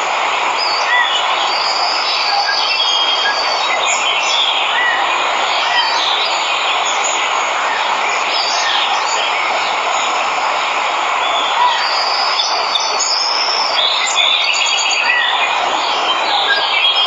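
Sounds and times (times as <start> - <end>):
waterfall rushing: 0.0 - 17.0
birds chirping and whistling: 11.2 - 17.0.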